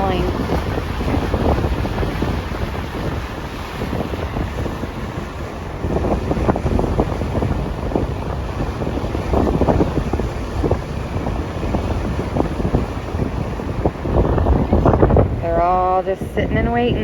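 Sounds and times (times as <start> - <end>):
heavy surf rushing: 0.0 - 17.0
wind buffeting microphone: 0.0 - 17.0.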